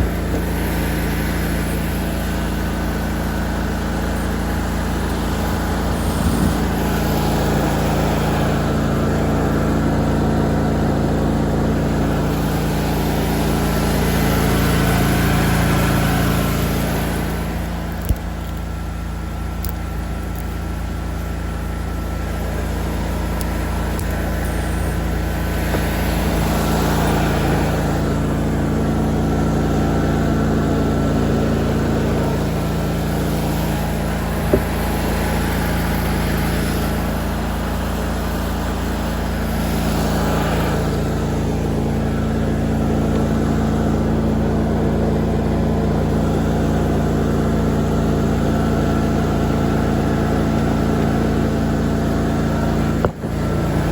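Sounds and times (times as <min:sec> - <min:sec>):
lawn mower engine cutting grass: 0:00.0 - 0:53.9.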